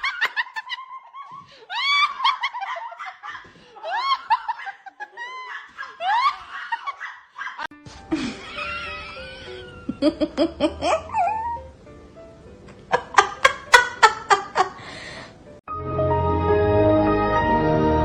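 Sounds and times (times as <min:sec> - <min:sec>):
person laughing in whoops: 0:00.0 - 0:11.7
music: 0:07.7 - 0:18.0.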